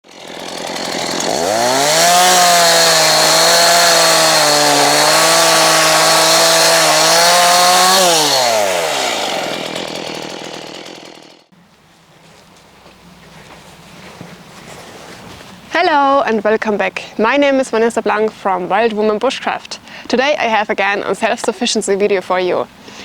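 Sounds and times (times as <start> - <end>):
chainsaw revving: 0.0 - 11.5.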